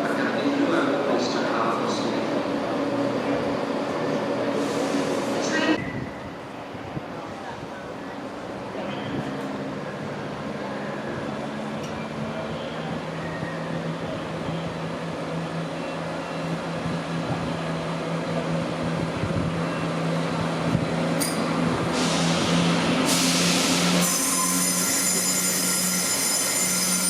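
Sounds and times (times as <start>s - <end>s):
train engine hum: 0.0s - 27.0s
air brake hiss: 4.6s - 5.4s, 21.9s - 24.6s.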